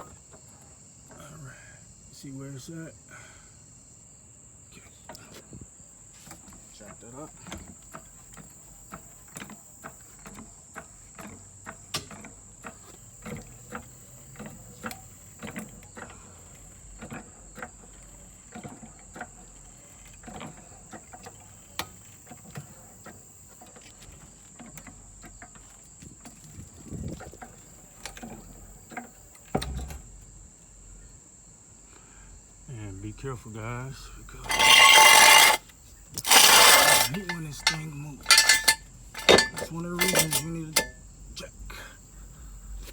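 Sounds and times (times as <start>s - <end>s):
crickets trilling: 0.0s - 42.9s
car jack clicking and knocking: 7.4s - 15.9s
car jack clunk: 36.2s - 41.0s.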